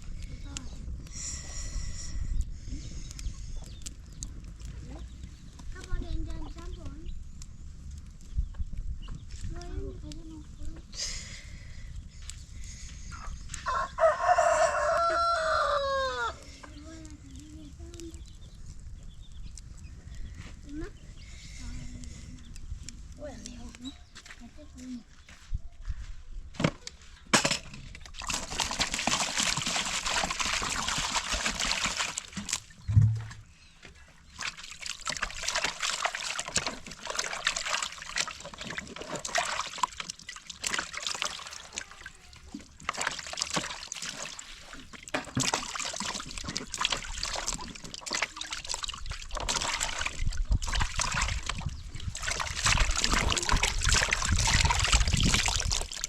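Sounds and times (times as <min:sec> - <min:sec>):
water sloshing and splashing: 0:27.4 - 0:56.0
dull thump: 0:32.9 - 0:33.5.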